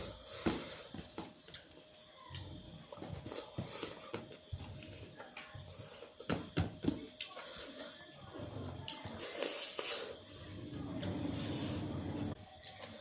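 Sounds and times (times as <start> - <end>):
person chewing food: 0.0 - 7.8.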